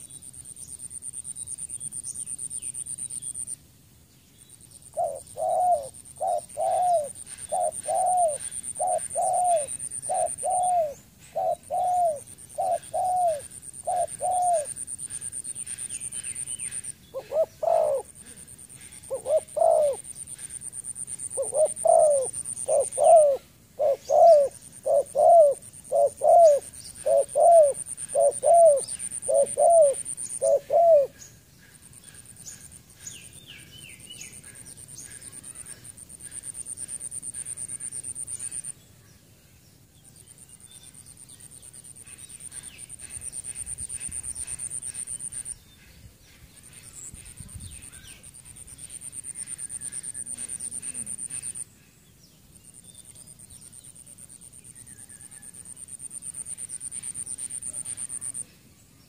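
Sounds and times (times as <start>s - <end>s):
small birds chirping: 0.0s - 55.1s
dove cooing: 4.9s - 15.4s, 16.8s - 31.2s, 49.4s - 51.6s.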